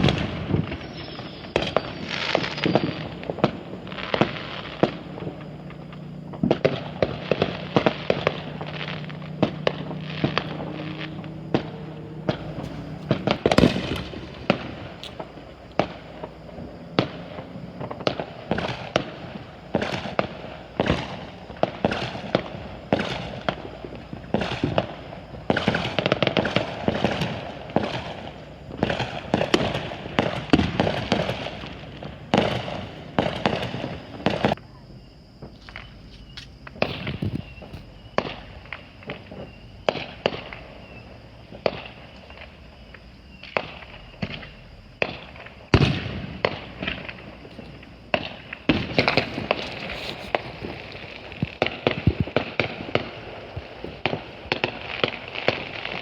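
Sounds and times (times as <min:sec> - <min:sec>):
firecrackers cracking and banging: 0:00.0 - 0:34.6, 0:43.4 - 0:56.0.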